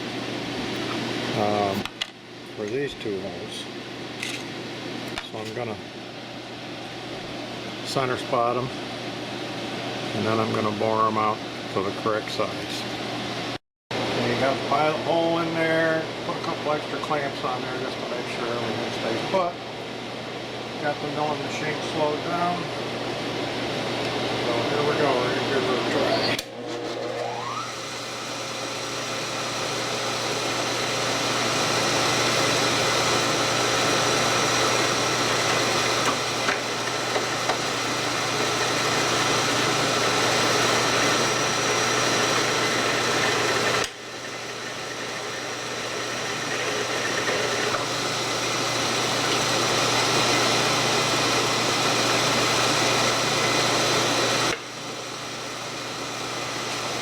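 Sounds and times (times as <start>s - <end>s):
thin whine: 24.4s - 32.2s
milling machine cutting metal: 24.9s - 57.0s.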